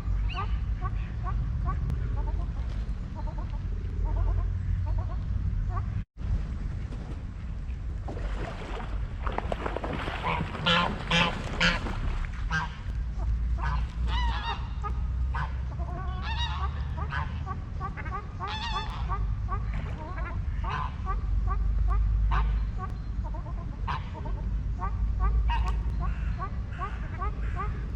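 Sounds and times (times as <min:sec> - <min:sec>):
steady low rumble: 0:00.0 - 0:27.9
waterfowl honking: 0:10.1 - 0:27.9.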